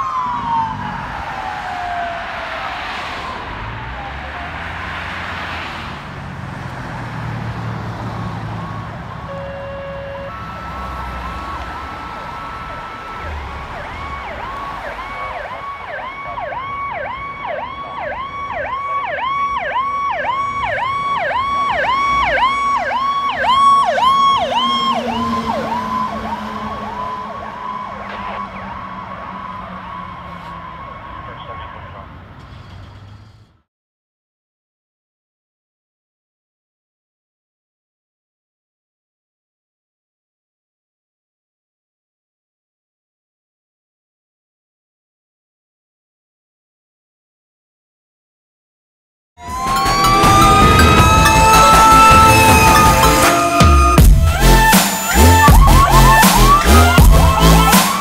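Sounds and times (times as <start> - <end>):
electronic siren wailing and yelping: 0.0 - 4.8, 8.6 - 32.1, 49.4 - 58.0.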